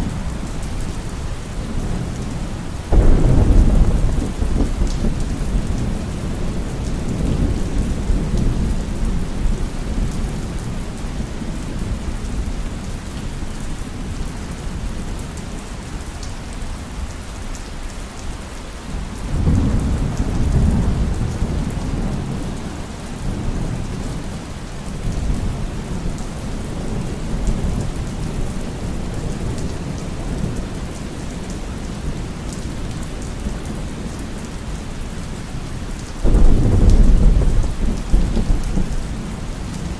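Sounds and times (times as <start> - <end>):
heavy rain falling: 0.0 - 39.9
low rolling thunder: 1.6 - 12.9, 19.3 - 32.3, 36.2 - 39.9.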